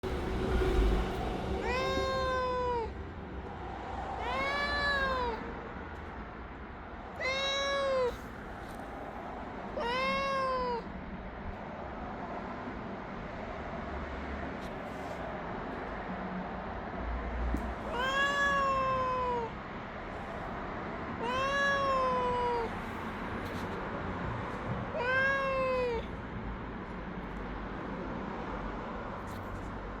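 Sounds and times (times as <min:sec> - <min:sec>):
low rumble: 0:00.0 - 0:04.2
cat meowing: 0:01.6 - 0:03.0, 0:04.2 - 0:05.6, 0:07.0 - 0:08.8, 0:09.7 - 0:11.0, 0:17.5 - 0:19.6, 0:21.2 - 0:23.7, 0:24.9 - 0:26.2.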